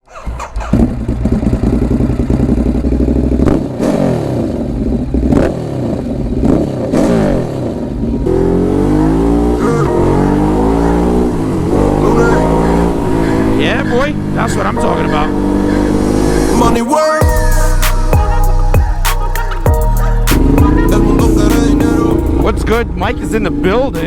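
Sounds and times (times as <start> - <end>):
exhaust cracks: 0.0 - 8.4
motorcycle engine revving: 0.0 - 24.0.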